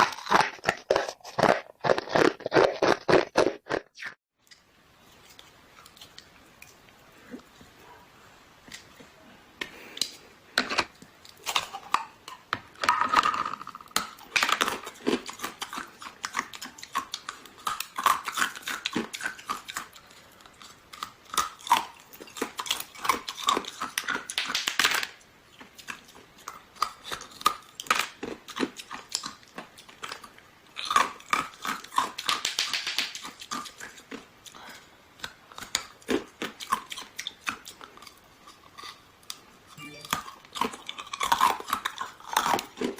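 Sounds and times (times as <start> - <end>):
crunching and chewing ice: 0.0 - 4.1, 13.2 - 32.4, 33.1 - 39.5, 40.1 - 42.9.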